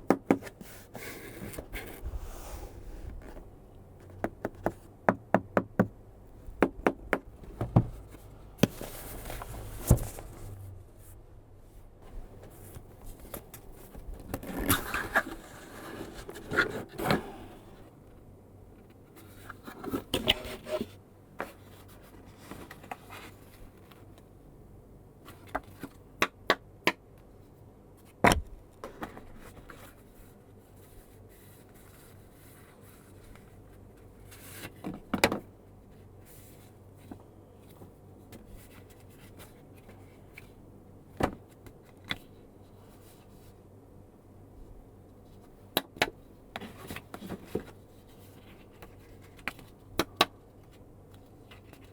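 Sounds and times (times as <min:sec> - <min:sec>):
cardboard scraping and rustling: 0:07.4 - 0:11.2.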